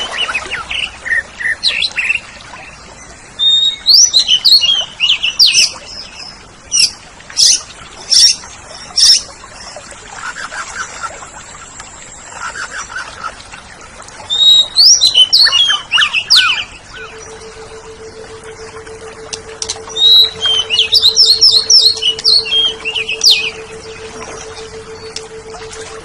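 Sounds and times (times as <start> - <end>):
faint steady hum: 0.0 - 26.0
bird singing: 3.4 - 9.3, 14.3 - 26.0.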